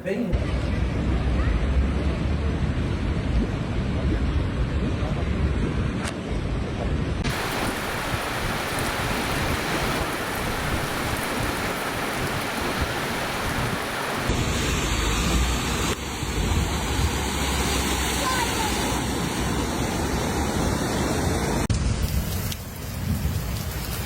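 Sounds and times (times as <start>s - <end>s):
wind: 0.0s - 24.0s
heavy rain: 7.2s - 24.0s.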